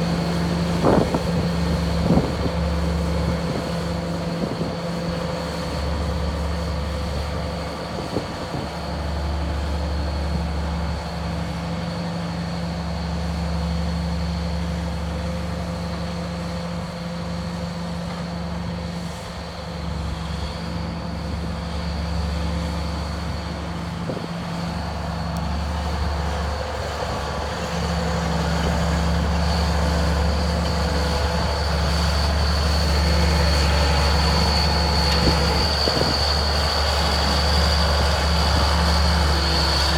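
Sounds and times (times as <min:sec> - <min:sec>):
tractor diesel engine humming: 0:00.0 - 0:39.9.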